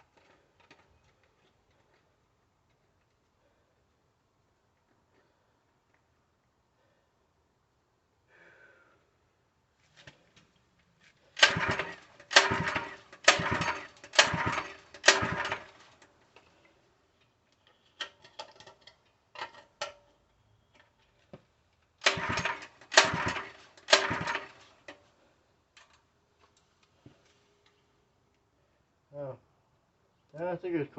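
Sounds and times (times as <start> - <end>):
recoil starter being pulled: 11.3 - 16.8, 22.0 - 25.1
engine turning over: 11.4 - 16.1, 22.0 - 25.0.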